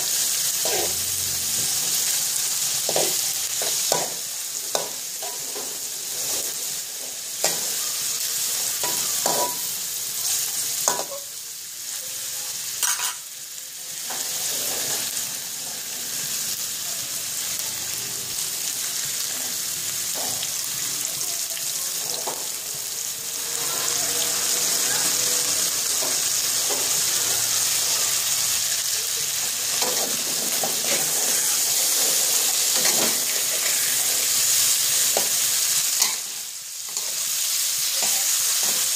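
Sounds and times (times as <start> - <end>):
fish sizzling in hot oil: 0.0 - 38.9
metal spatula scraping a wok: 0.1 - 1.9, 14.1 - 15.2, 29.8 - 36.3.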